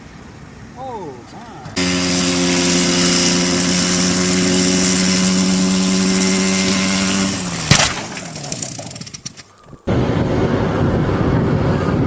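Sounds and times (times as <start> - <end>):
engine running: 1.8 - 11.9
loud crash impact: 7.6 - 8.8
clattering: 7.7 - 9.5.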